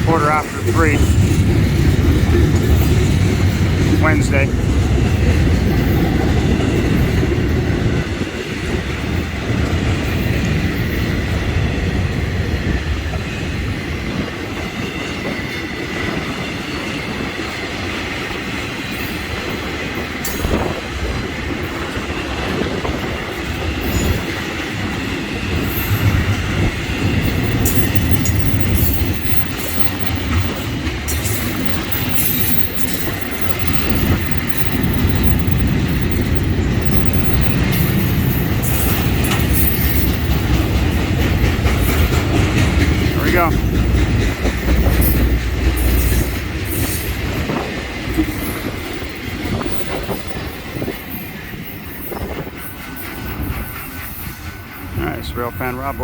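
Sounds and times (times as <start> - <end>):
wheels clacking over rail joints: 0.0 - 55.8
freight train rumbling past: 0.0 - 56.0.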